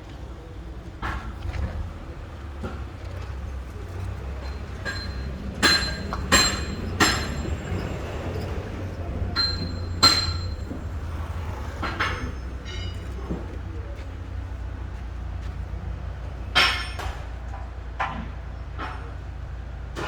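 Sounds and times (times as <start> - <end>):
metal clanks: 2.4 - 13.8, 16.5 - 19.2.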